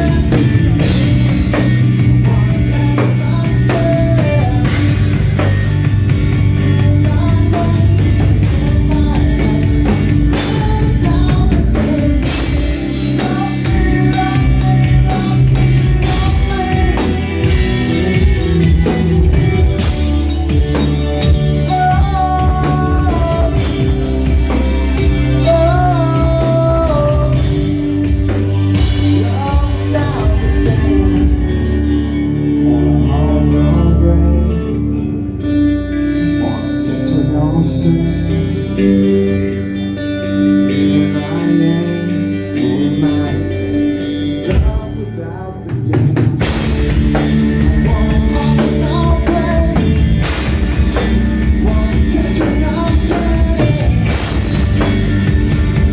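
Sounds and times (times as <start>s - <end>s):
drum kit and cymbals: 0.0s - 32.0s, 45.9s - 55.9s
electric guitar: 0.0s - 55.9s
person singing: 0.0s - 55.9s.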